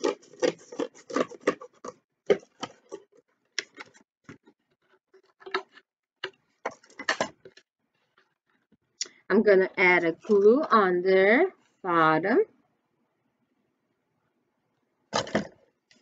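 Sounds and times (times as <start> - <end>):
scissors snipping cardboard: 0.0 - 2.8.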